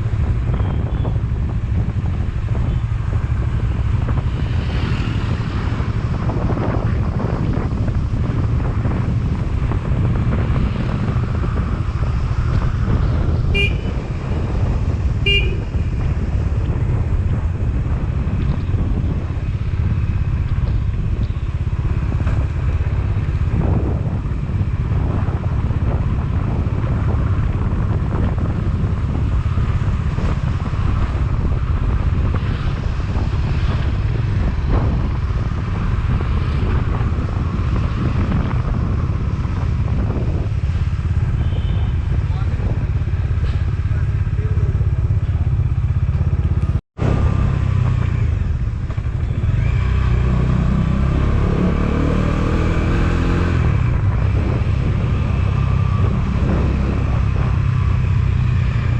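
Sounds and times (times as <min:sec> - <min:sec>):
motorcycle engine rumble: 0:00.0 - 0:58.9
horn short beeps: 0:13.6 - 0:14.0, 0:15.3 - 0:15.6.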